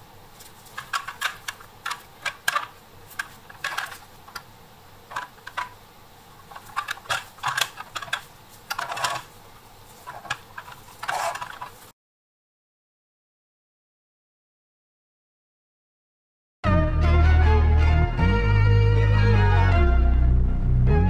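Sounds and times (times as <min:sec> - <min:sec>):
scraping rustles: 0:00.3 - 0:04.4, 0:06.4 - 0:11.9.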